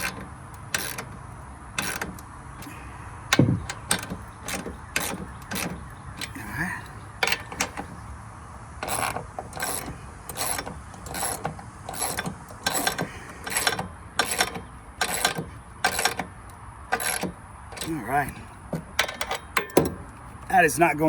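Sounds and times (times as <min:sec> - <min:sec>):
ratchet wrench clicking: 0:00.0 - 0:02.7, 0:08.8 - 0:20.3.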